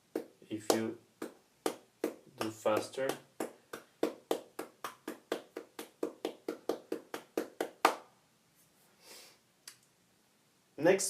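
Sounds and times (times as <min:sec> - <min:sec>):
body-percussion hand strokes: 0:00.1 - 0:08.0.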